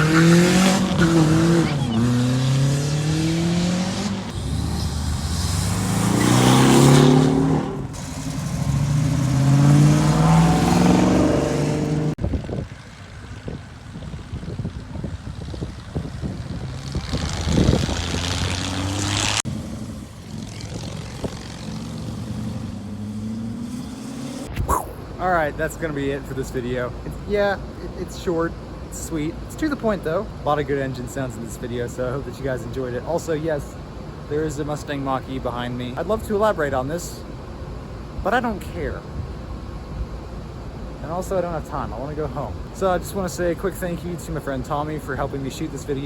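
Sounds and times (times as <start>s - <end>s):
car engines accelerating hard: 0.0s - 24.5s.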